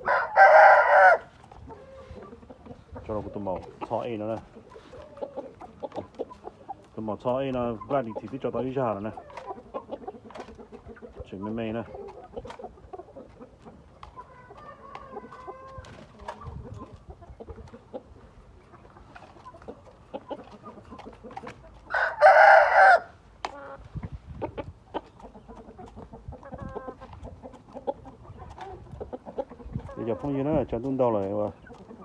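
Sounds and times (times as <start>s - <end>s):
rooster crowing: 0.0s - 1.3s, 21.9s - 23.1s
birds clucking and calling: 0.0s - 32.0s.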